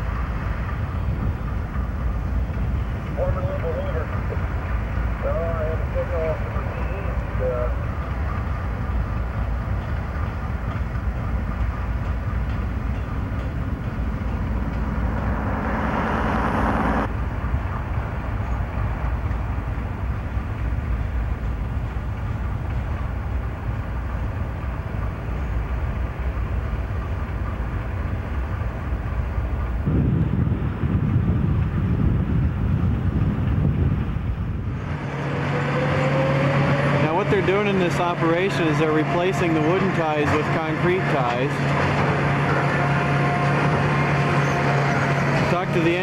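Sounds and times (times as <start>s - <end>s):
freight train rumbling past: 0.0s - 46.0s
wind buffeting microphone: 28.6s - 35.5s.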